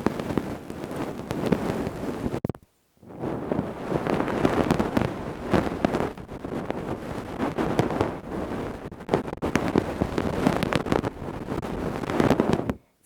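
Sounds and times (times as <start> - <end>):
ear-cleaning tools scraping microphone: 3.1 - 12.8.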